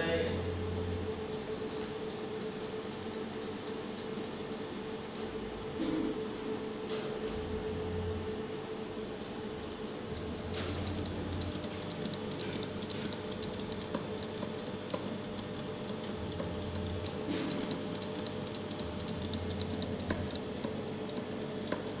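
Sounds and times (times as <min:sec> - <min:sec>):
laser welder crackling: 0:00.0 - 0:04.8, 0:09.3 - 0:22.0
machine hum: 0:00.0 - 0:22.0.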